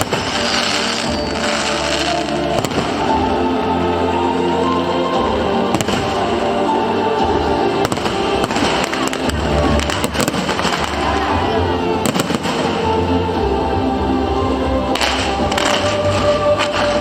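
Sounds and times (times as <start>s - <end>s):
fireworks bangs and crackles: 0.0s - 3.5s, 5.3s - 6.6s, 7.2s - 13.3s, 14.9s - 17.0s
loud music: 0.0s - 17.0s.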